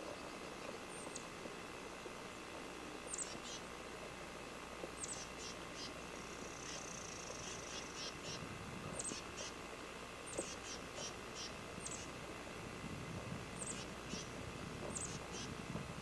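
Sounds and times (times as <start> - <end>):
small bird chirping: 3.0 - 3.7, 5.0 - 9.6, 10.2 - 12.2, 13.6 - 15.6.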